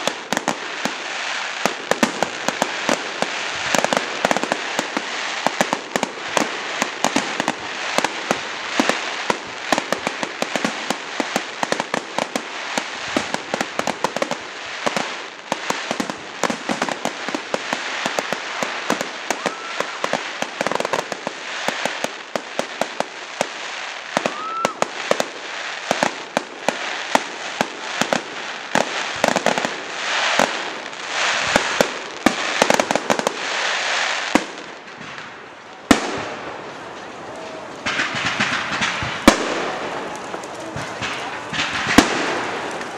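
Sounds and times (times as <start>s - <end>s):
fireworks cracking and popping: 0.0s - 42.9s
firework whistles: 18.0s - 22.1s, 24.1s - 25.6s.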